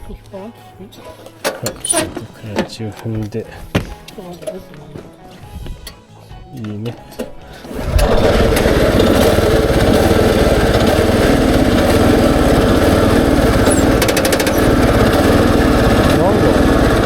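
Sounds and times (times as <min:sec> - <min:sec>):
petrol engine running: 0:07.6 - 0:17.0.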